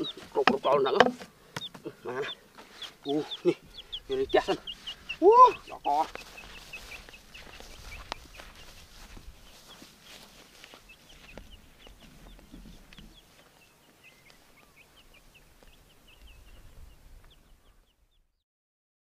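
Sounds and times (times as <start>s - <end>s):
bird chirping: 0.0s - 18.4s.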